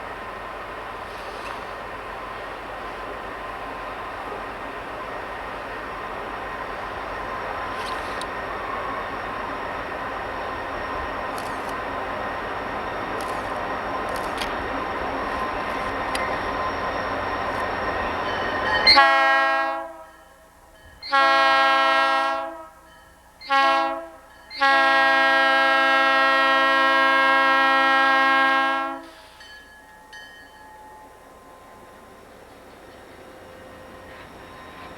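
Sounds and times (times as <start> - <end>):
diesel locomotive passing: 0.0 - 34.9
locomotive air horn blasts: 18.8 - 20.2, 21.0 - 29.4.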